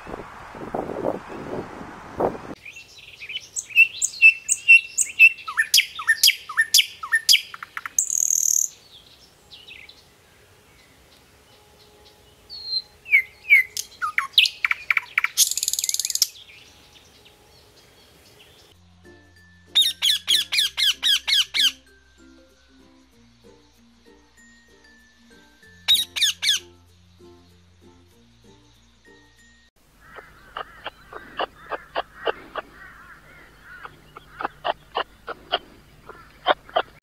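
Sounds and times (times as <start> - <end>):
macaw calling: 3.2 - 8.8, 12.6 - 16.4, 19.8 - 21.8, 25.9 - 26.7, 29.9 - 37.0
goslings peeping: 29.9 - 37.0
young chicks peeping: 30.0 - 37.0.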